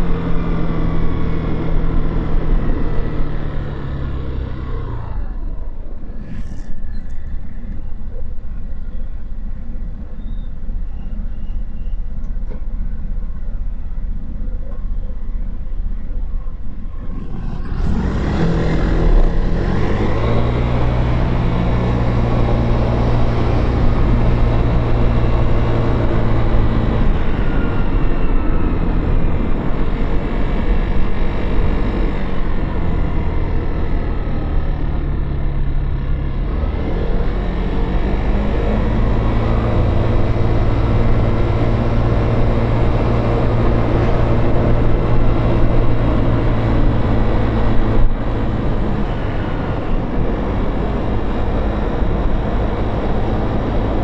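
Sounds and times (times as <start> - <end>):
wind and road noise: 0.0 - 54.0
motorcycle engine: 13.1 - 54.0.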